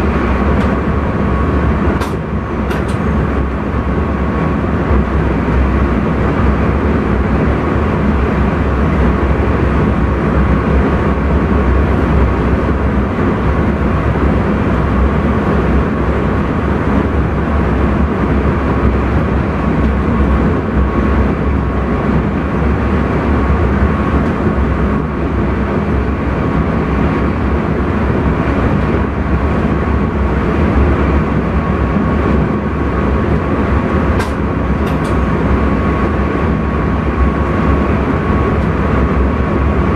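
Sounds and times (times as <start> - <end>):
thin steady whine: 0.0 - 39.9
train wheels rumbling: 0.0 - 39.9.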